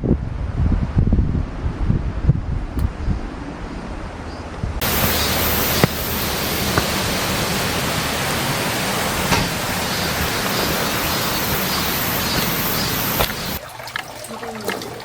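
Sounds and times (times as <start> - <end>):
steady rushing noise: 0.0 - 13.6.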